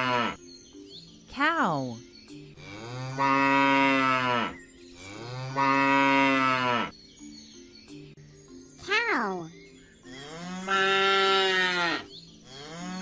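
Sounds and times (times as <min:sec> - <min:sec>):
cow mooing: 0:00.0 - 0:00.4, 0:02.6 - 0:06.9, 0:10.1 - 0:13.0.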